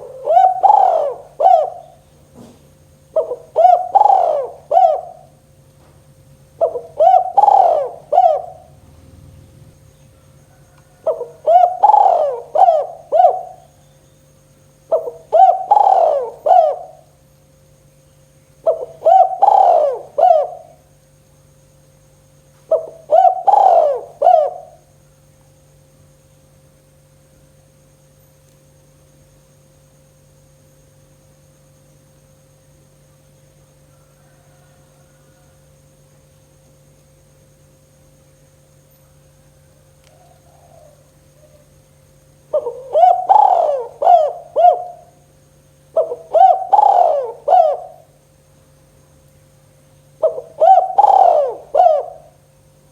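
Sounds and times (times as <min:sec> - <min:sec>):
dove cooing: 0:00.0 - 0:05.6, 0:06.4 - 0:13.9, 0:14.8 - 0:17.2, 0:18.6 - 0:20.9, 0:22.6 - 0:24.9, 0:33.9 - 0:35.6, 0:39.6 - 0:41.8, 0:42.4 - 0:45.3, 0:45.9 - 0:48.2, 0:50.1 - 0:52.6
faint steady hum: 0:00.0 - 0:52.9.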